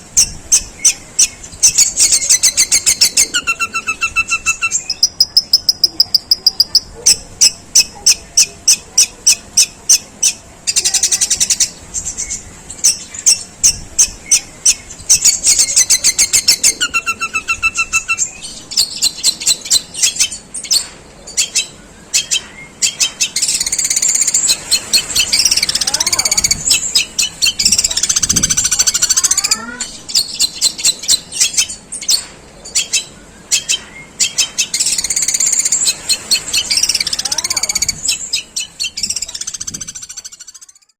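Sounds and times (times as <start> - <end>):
shrike singing harsh rapid notes: 0.1 - 20.7.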